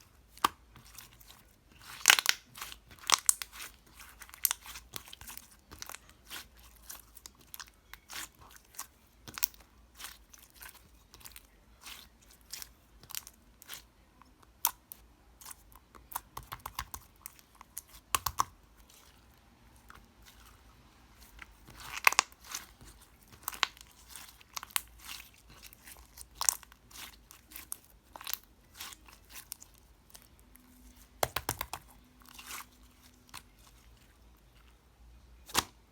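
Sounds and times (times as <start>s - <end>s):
slime clicking and popping: 18.1s - 18.5s, 31.2s - 31.9s.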